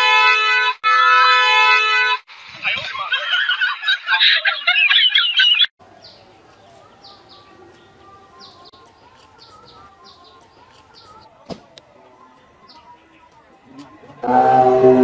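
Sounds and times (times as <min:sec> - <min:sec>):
faint outdoor background: 0:00.0 - 0:15.0
small birds chirping: 0:04.8 - 0:11.3.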